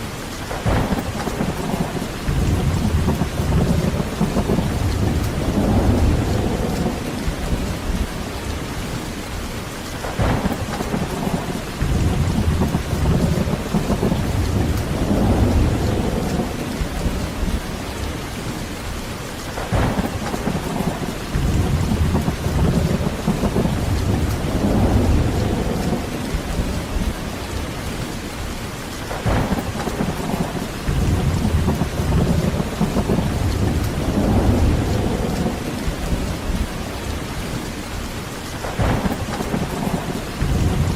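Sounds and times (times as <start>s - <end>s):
heavy rain: 0.0s - 40.9s
thunder rumbling: 0.5s - 9.4s, 10.0s - 40.9s
sharp thunder crack: 10.0s - 17.4s, 19.6s - 27.1s, 29.1s - 36.7s, 38.6s - 40.9s.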